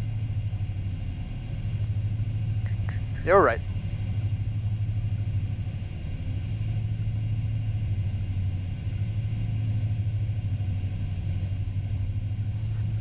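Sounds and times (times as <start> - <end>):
jet cockpit rumble: 0.0 - 13.0.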